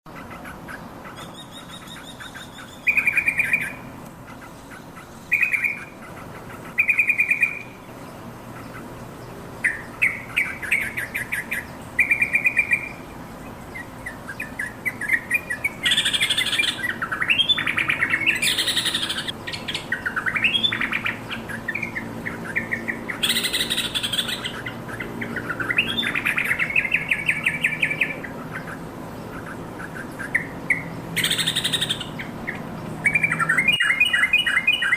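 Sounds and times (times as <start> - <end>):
bird chattering calls: 0.1 - 7.8, 8.4 - 34.9
bird whistled notes: 33.1 - 34.9.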